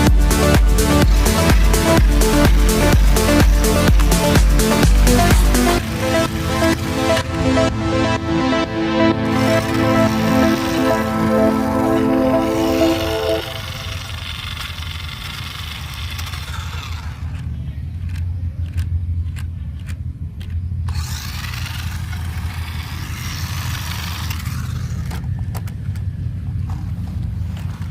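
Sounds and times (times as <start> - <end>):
small model motor humming: 9.3 - 11.6, 12.5 - 18.8, 20.4 - 26.0.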